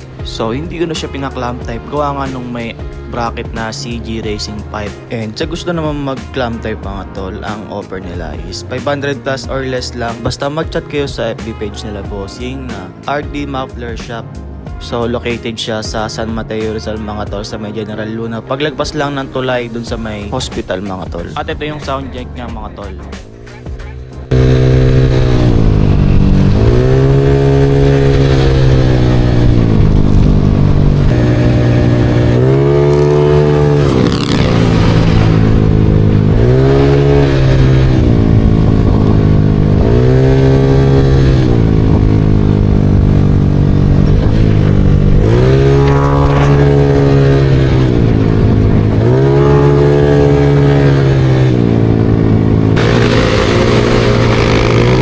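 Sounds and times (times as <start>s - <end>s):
scooter engine revving: 21.7s - 55.0s.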